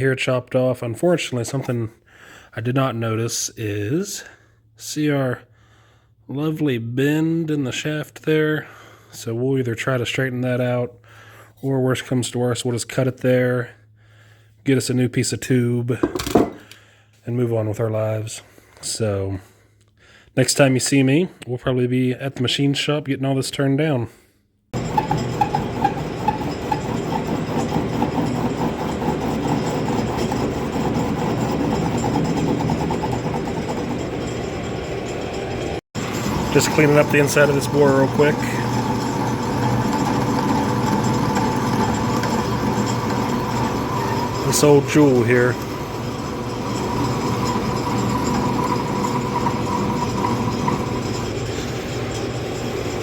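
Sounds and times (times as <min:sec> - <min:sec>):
machine rumbling: 0:24.8 - 0:53.0
metal lathe humming: 0:24.8 - 0:53.0.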